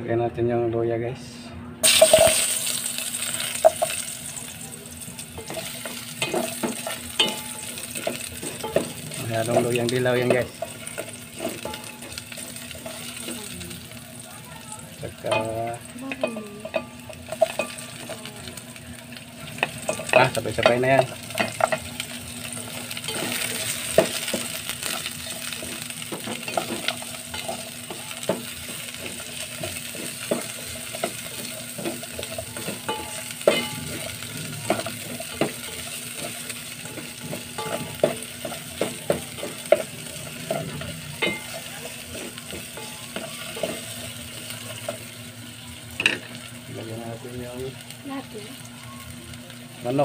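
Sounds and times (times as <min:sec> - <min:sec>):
vegetables sizzling in oil: 0:01.8 - 0:50.0.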